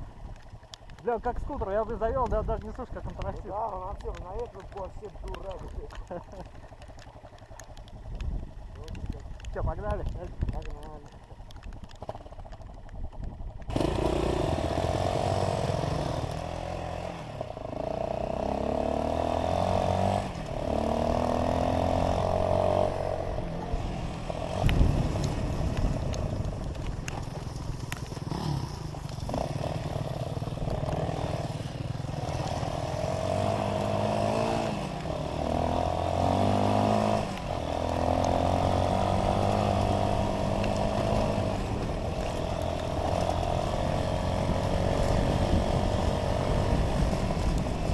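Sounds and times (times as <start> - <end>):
dirt bike engine revving: 13.7 - 26.5, 27.4 - 47.9.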